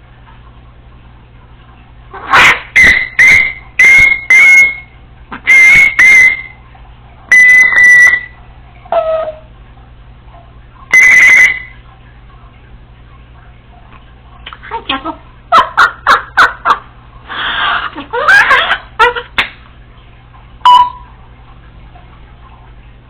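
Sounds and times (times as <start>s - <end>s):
parrot whistling: 2.2s - 6.6s, 7.3s - 9.5s, 10.9s - 11.8s.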